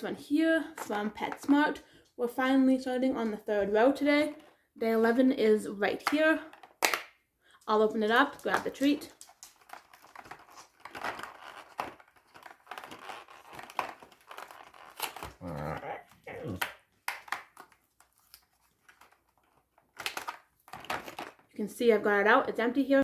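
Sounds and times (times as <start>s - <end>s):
cardboard tearing and crinkling: 9.3s - 16.5s.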